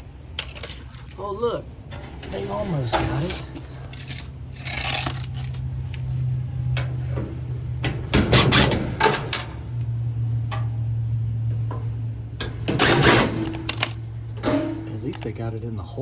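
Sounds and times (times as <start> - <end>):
steady low hum: 0.0 - 16.0
clicks and clattering knocks: 11.7 - 15.4.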